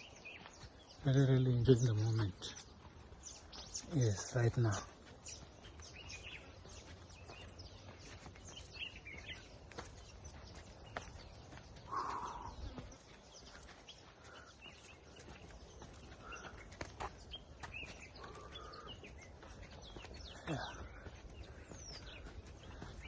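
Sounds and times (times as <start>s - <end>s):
bird chirps: 0.0s - 23.0s
faint footstep clicks: 2.1s - 23.0s
lower bird call: 11.7s - 13.1s.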